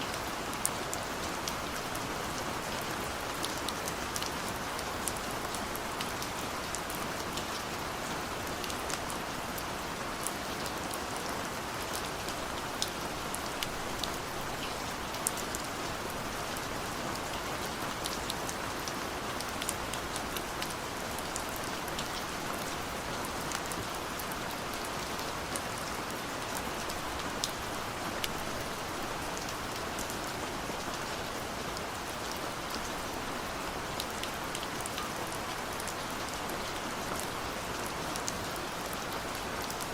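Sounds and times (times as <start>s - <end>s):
steady rain hiss: 0.0s - 39.9s
raindrops ticking on surfaces: 0.1s - 39.9s.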